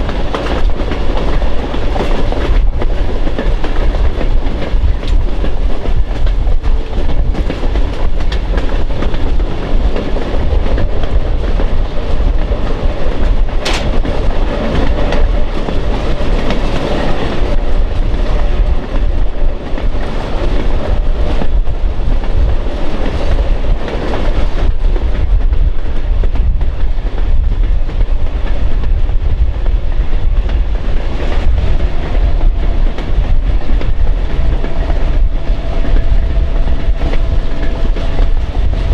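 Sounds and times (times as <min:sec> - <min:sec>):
train wheels clacking on rails: 0:00.0 - 0:38.9
sharp click: 0:13.6 - 0:14.1.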